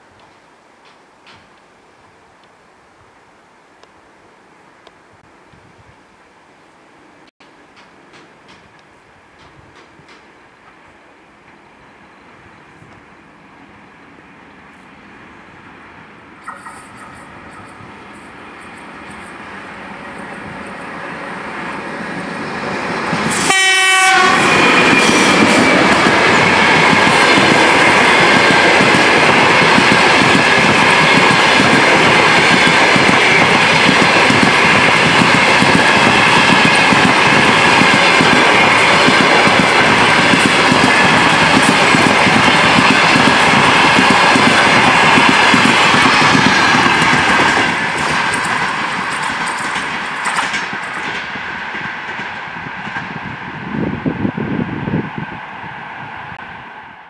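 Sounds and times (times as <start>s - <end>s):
train wheels rolling: 7.4s - 10.8s, 16.4s - 55.2s
train horn blast: 23.3s - 25.3s.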